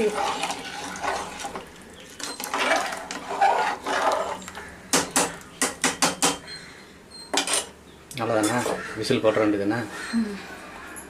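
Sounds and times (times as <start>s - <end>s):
ladle stirring and sloshing: 0.0s - 4.7s.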